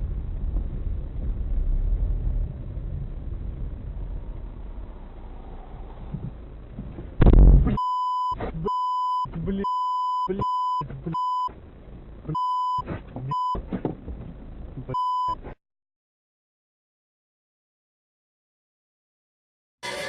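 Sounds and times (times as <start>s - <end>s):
loud thump: 6.8s - 7.8s
censor beep tone: 7.8s - 11.5s, 12.3s - 13.6s, 14.9s - 15.4s
man talking: 8.4s - 11.3s.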